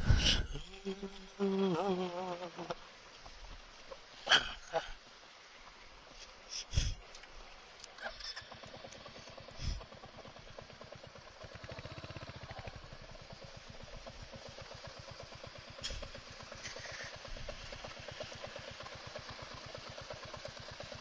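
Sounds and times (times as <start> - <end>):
motorcycle engine idling: 8.4 - 21.0.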